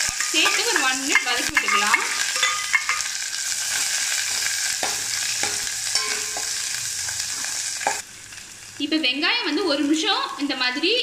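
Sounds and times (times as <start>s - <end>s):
spoon knocking and scraping pot: 0.0s - 3.2s, 4.3s - 6.7s
onions sizzling in hot oil: 0.0s - 11.0s.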